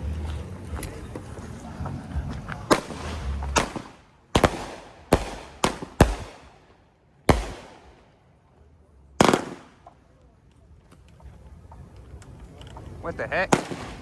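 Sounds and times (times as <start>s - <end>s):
fireworks bangs: 0.8s - 8.3s, 9.2s - 10.2s, 12.8s - 14.0s.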